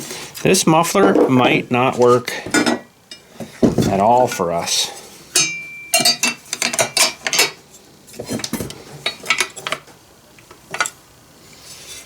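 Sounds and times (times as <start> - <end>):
small metal parts clinking: 5.4 - 7.6.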